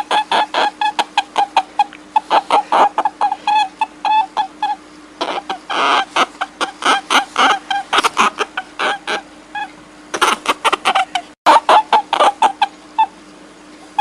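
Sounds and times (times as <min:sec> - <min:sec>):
short high-pitched animal calls: 0:00.0 - 0:13.2
low steady hum: 0:00.0 - 0:14.0.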